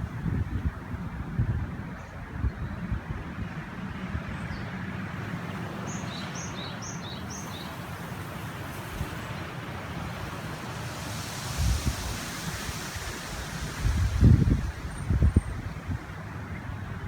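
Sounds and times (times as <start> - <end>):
wind buffeting microphone: 0.0 - 6.0, 6.6 - 17.0
river rushing: 5.1 - 17.0.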